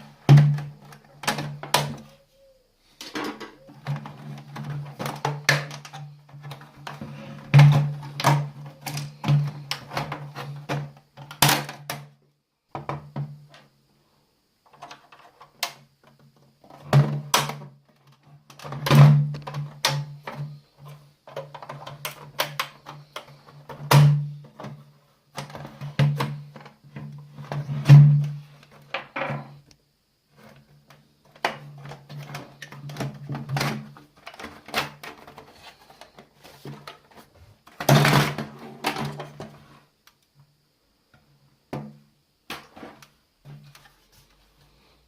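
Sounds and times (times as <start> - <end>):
plastic casing clicking and rattling: 21.3 - 24.7.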